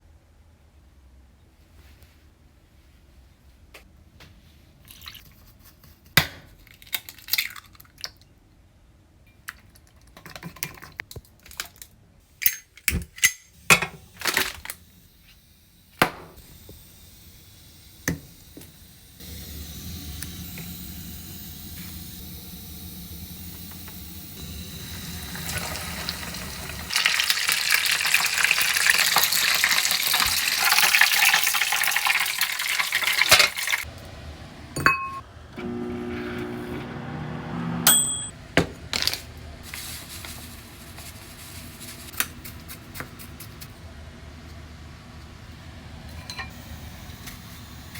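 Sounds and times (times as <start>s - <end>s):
gas stove burner rumbling: 12.4s - 47.9s
food deep-frying in oil: 16.4s - 33.9s
cookware clinking: 34.8s - 35.2s, 37.9s - 38.3s.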